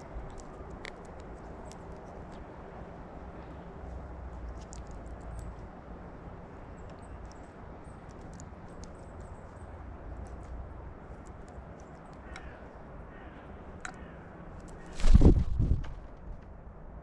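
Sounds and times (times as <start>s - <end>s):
faint high clicks and ticks: 0.0s - 2.5s, 3.4s - 5.6s, 6.8s - 12.6s.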